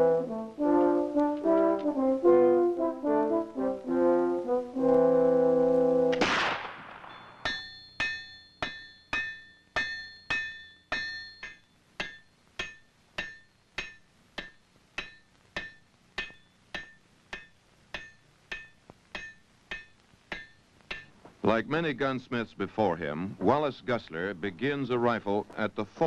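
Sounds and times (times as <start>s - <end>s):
hammer striking iron on anvil: 7.1s - 21.2s.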